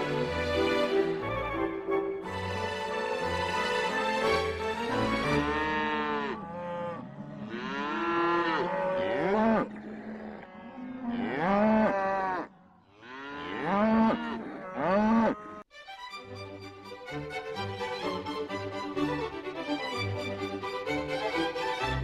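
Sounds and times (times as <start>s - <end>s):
cows mooing: 5.2s - 15.7s.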